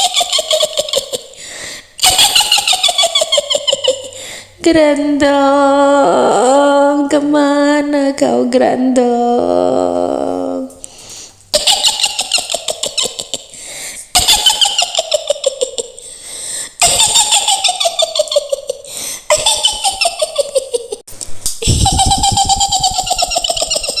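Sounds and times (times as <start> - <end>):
woman cackling: 16.8 - 21.0, 21.6 - 24.0.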